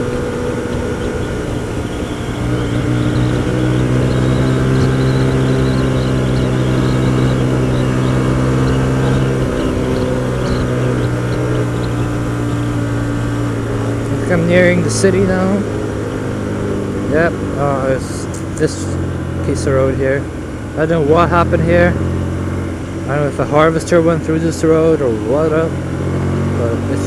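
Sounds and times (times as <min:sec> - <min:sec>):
wind noise: 0:00.0 - 0:18.5
motorcycle engine running: 0:00.0 - 0:27.0.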